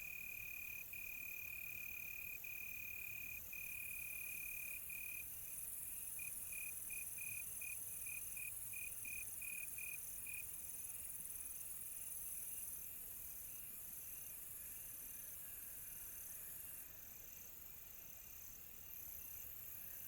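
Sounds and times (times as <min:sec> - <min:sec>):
crickets chirping chorus: 0:00.0 - 0:20.0.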